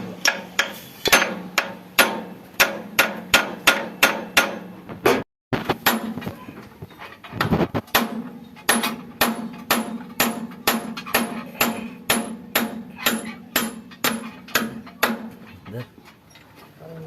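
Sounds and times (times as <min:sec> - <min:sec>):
hammer striking metal: 0:00.2 - 0:05.2, 0:05.8 - 0:06.2, 0:07.9 - 0:15.4.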